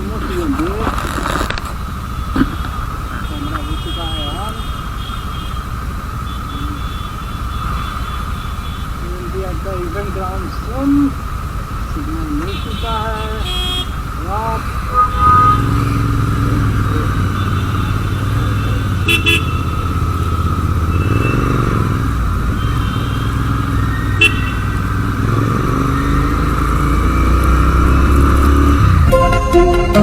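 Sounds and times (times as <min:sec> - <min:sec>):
motorcycle engine rumbling: 0:00.0 - 0:29.2
brief sharp horn toots: 0:14.9 - 0:15.9.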